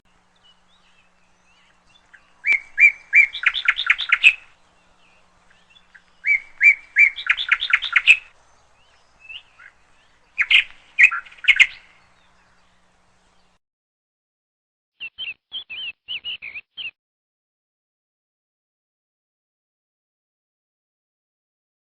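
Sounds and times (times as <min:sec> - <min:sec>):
songbird singing: 0:00.0 - 0:13.6, 0:15.0 - 0:17.0.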